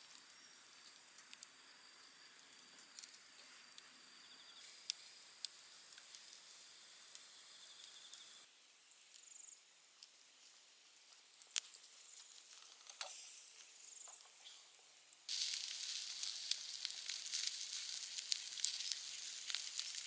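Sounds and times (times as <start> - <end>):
faint crackles: 4.6 - 20.0
food sizzling in a pan: 4.6 - 20.0.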